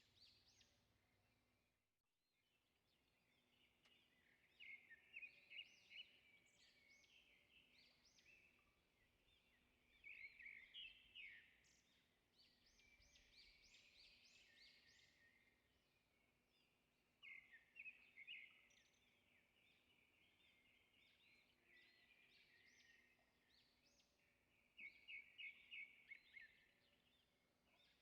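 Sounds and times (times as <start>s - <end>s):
faint birds chirping: 2.4s - 28.0s.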